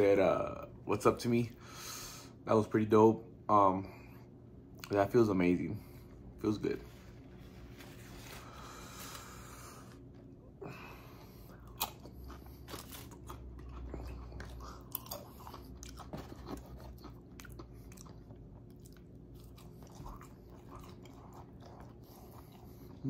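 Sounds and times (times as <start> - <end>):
person crunching chips: 11.5 - 22.0.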